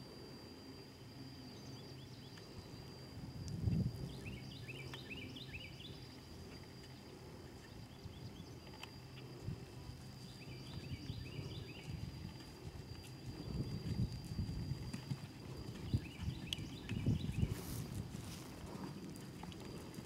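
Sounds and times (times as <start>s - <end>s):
thin high whine: 0.0s - 20.0s
songbird chirping: 4.0s - 14.4s, 15.5s - 18.9s
wind rumble: 9.3s - 20.0s
hoofbeats on grass: 10.5s - 20.0s.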